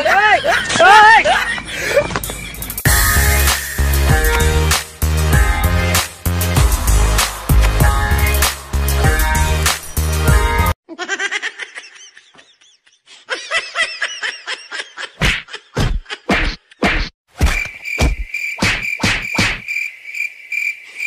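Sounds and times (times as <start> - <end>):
sharp whack hits: 15.2 - 19.6.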